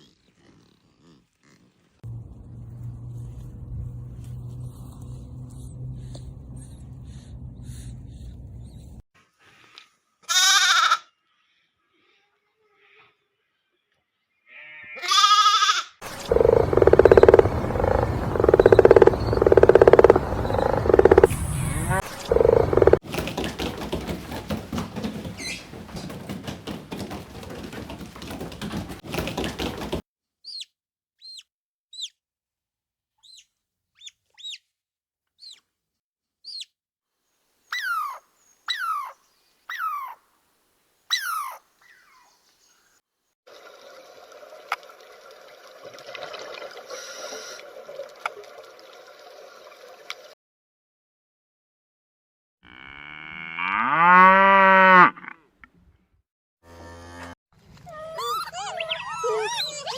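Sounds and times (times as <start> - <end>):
bleat-like animal call: 10.2 - 11.1, 14.4 - 16.0
crackling: 16.0 - 23.8
loud rough pulsing animal call: 16.0 - 30.0
falling bird chirps: 16.1 - 32.2.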